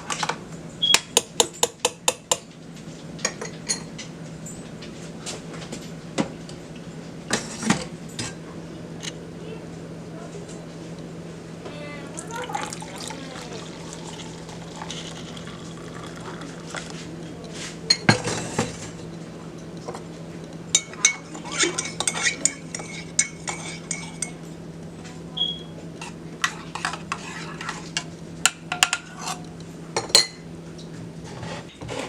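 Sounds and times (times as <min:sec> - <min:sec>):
steady low hum: 0:06.0 - 0:28.5
kitchenware clinking: 0:12.2 - 0:19.0, 0:20.7 - 0:24.4.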